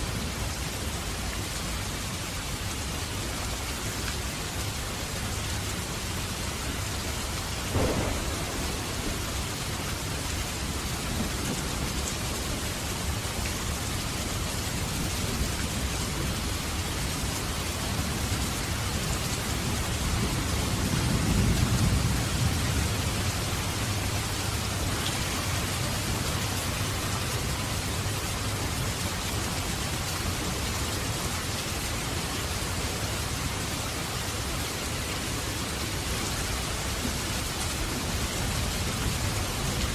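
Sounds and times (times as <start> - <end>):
steady rain: 0.0 - 39.9
thunder rumble: 7.6 - 13.2, 17.9 - 27.1.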